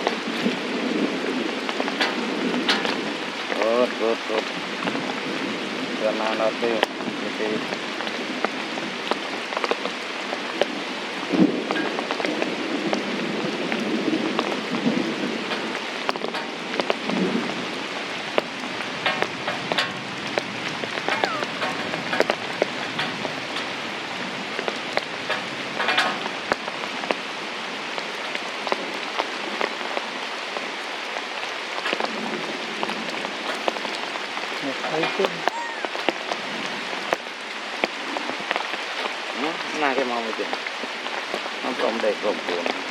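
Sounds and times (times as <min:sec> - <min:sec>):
heavy rain: 0:00.0 - 0:42.9
high chirps: 0:21.0 - 0:21.7.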